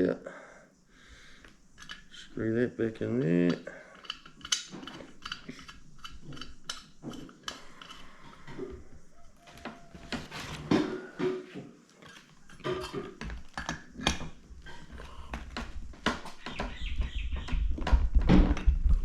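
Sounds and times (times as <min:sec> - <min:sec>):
metallic clicks and knocks: 0:01.4 - 0:11.3
table rumbling: 0:03.0 - 0:18.9.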